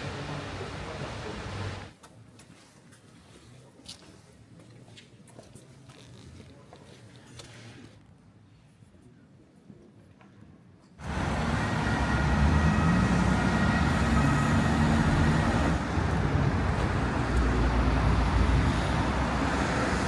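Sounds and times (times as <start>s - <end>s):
low engine rumble: 0.0s - 1.9s, 11.0s - 20.0s
vehicle road noise: 0.0s - 1.9s, 11.0s - 20.0s.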